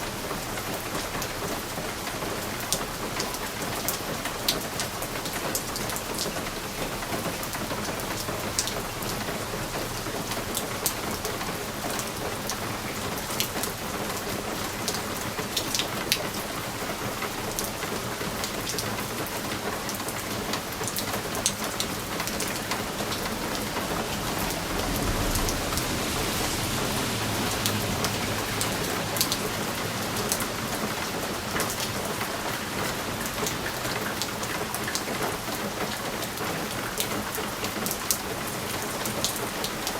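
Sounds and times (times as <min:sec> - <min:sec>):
rain pattering on window glass: 0:00.0 - 0:39.9
low rumble: 0:23.0 - 0:29.3.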